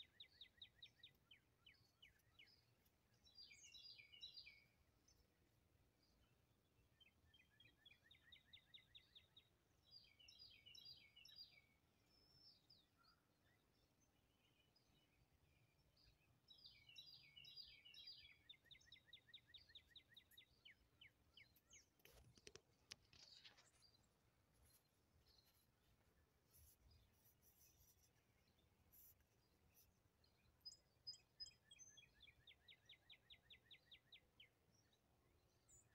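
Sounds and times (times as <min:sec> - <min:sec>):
faint songbird song: 0:00.0 - 0:35.9
sharp clicks and knocks: 0:22.0 - 0:23.7.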